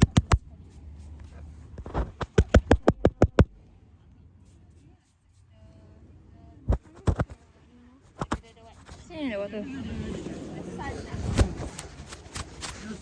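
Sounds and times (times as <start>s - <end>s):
rapid sharp taps: 0.0s - 0.5s, 1.8s - 3.6s, 6.7s - 7.4s.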